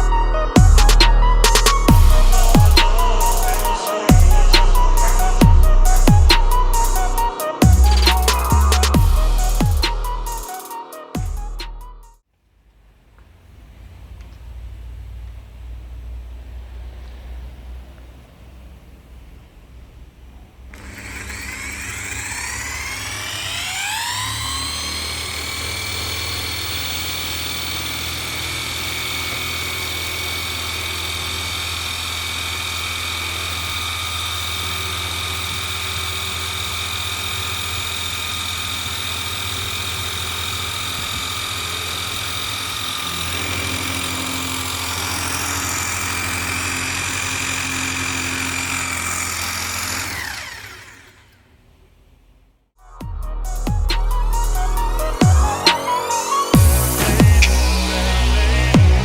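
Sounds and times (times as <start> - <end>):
car engine running: 12.5 - 52.7, 54.3 - 59.0.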